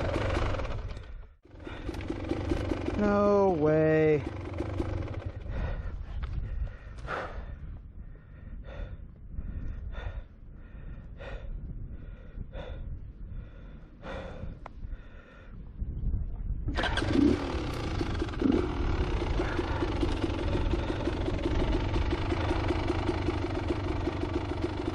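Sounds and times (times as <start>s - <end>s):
dirt bike engine running: 0.0s - 7.6s, 16.7s - 24.9s
heavy breathing: 1.1s - 2.8s, 5.1s - 15.8s, 17.7s - 24.8s.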